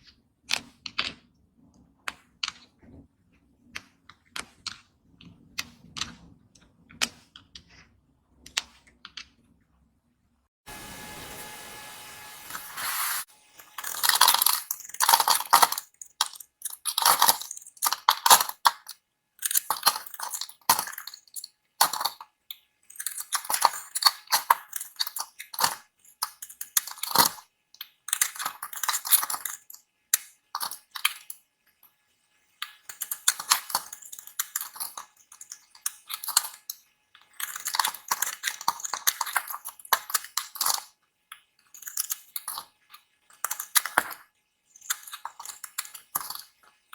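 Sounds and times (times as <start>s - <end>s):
blade cutting dry soap: 10.7s - 31.0s.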